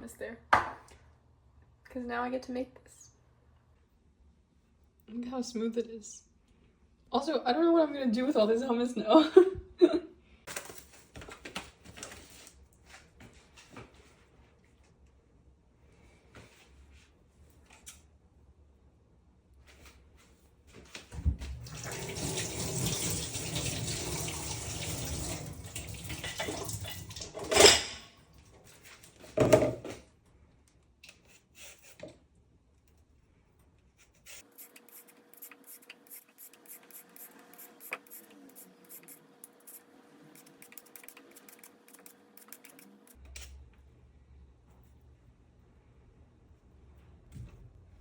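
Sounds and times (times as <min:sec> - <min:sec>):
tap water running into sink: 0:21.3 - 0:27.7.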